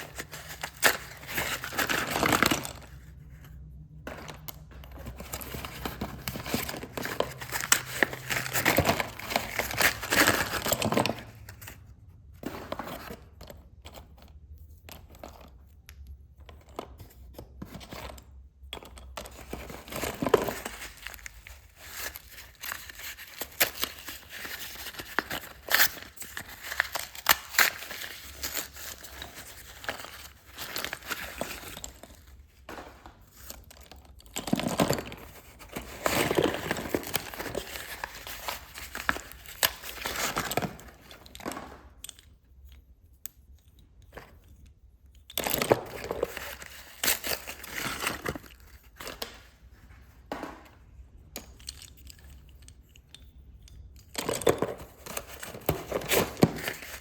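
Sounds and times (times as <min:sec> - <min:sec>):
packaging crinkling and tearing: 0:05.5 - 0:11.5, 0:20.1 - 0:31.8.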